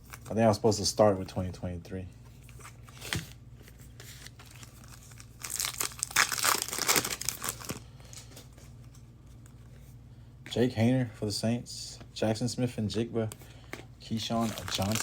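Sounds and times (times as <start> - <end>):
plastic wrapper tearing and crinkling: 4.1 - 8.2, 14.3 - 15.0.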